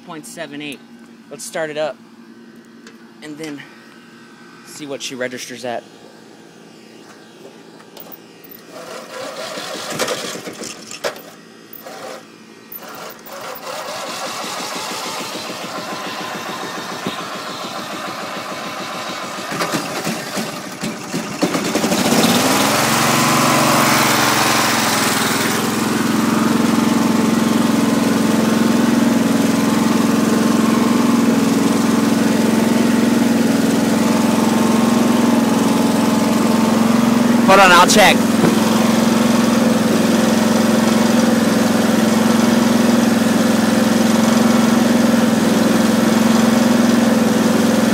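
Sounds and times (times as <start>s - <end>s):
lawn tractor engine running: 2.2s - 47.9s
electric starter cranking: 7.3s - 42.6s.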